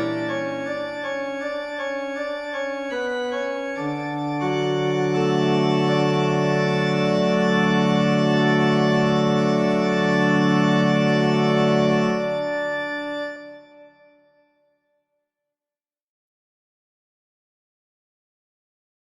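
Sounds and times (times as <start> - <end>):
organ music: 0.0 - 14.2.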